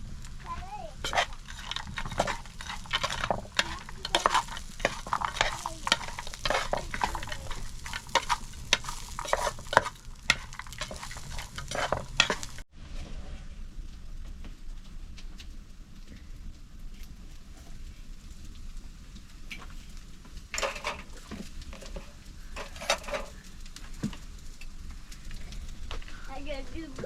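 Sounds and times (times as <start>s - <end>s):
scraping on rough surface: 0.0s - 13.5s, 19.6s - 24.3s.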